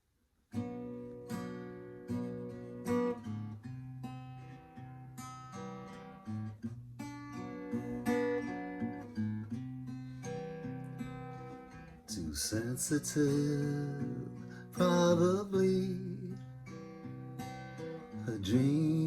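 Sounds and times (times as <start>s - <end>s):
acoustic guitar strumming chords: 0.6s - 19.0s.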